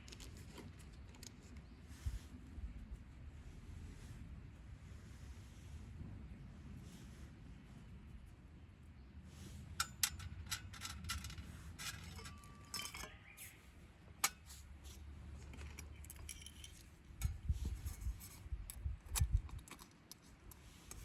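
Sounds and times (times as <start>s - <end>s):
small hard objects clinking: 10.3s - 13.3s, 15.4s - 17.1s.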